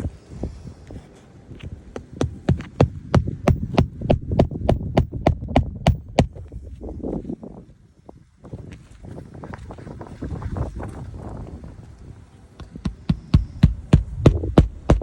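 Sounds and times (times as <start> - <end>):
hammer driving nails into shingle: 2.0 - 6.4.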